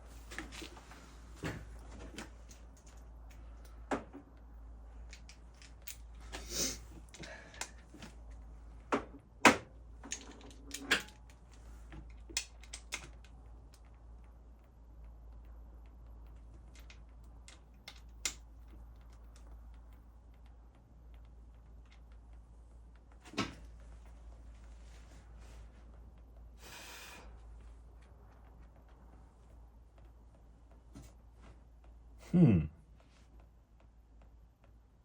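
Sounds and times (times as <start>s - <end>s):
faint low hum: 0.0s - 35.0s
tools and parts clicking: 5.0s - 8.4s, 10.0s - 13.9s, 16.2s - 19.6s.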